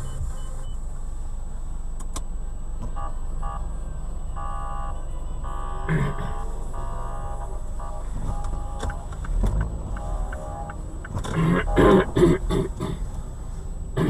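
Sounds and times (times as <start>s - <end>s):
car engine and road rumble: 0.0s - 14.0s
tones: 3.0s - 3.7s, 4.3s - 12.3s.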